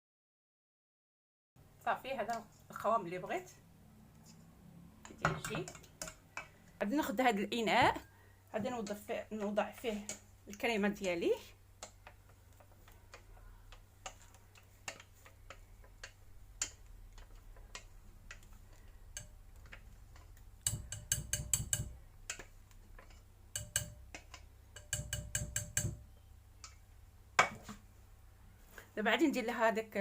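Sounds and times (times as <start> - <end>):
utensil clicking against saucepan: 5.0 - 6.6, 8.8 - 10.7, 11.8 - 26.8.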